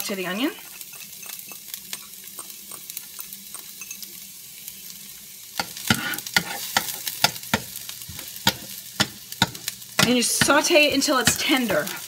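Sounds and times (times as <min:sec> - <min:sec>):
onion sizzling in butter: 0:00.0 - 0:12.0
metal spoon knocking against pan: 0:08.4 - 0:11.5.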